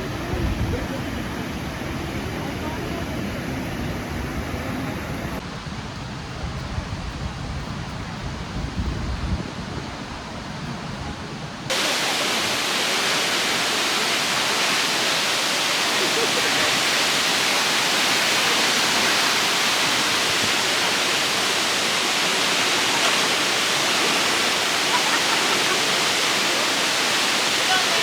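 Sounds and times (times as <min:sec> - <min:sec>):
waterfall rushing: 0:00.0 - 0:05.4, 0:11.7 - 0:28.0.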